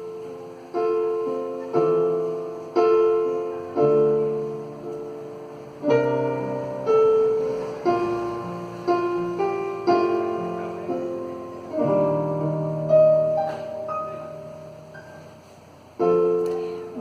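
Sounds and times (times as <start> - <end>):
instrumental chords ringing: 0.0 - 17.0.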